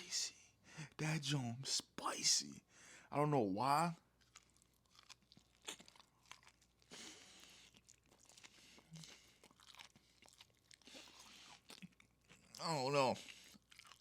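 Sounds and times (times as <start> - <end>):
person chewing: 4.0 - 14.0.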